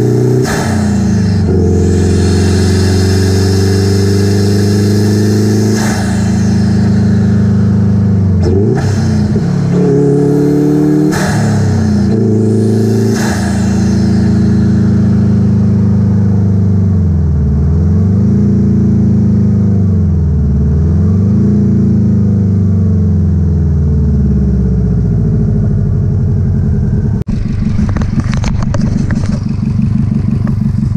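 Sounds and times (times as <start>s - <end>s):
engine at high revs: 0.0s - 30.9s
lower engine with rattling clatter: 0.0s - 30.9s.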